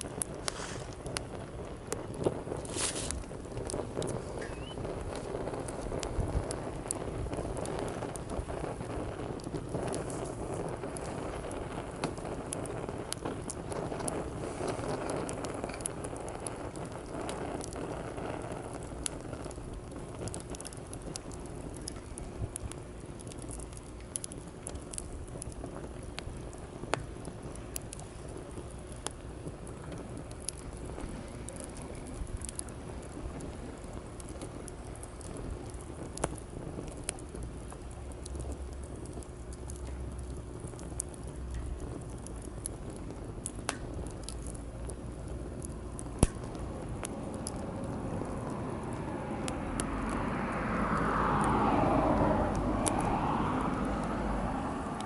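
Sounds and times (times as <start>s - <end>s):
wood fire crackling: 0.0s - 55.0s
passing vehicle: 47.1s - 55.0s.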